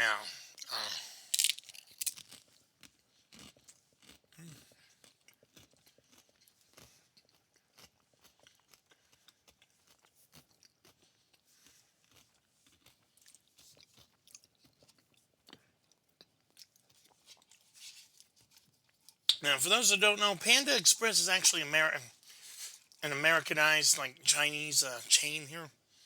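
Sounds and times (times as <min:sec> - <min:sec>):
crunching and chewing food: 0:00.0 - 0:19.9.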